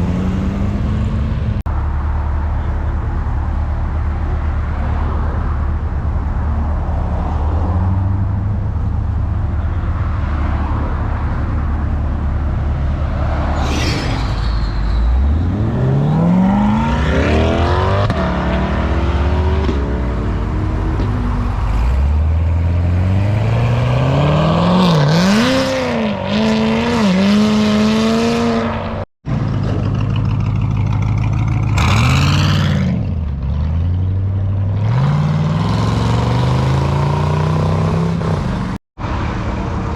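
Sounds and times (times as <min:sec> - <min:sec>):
cars revving and accelerating past: 0:00.0 - 0:30.0, 0:31.2 - 0:39.9
car engines idling: 0:01.7 - 0:07.0, 0:29.3 - 0:32.0.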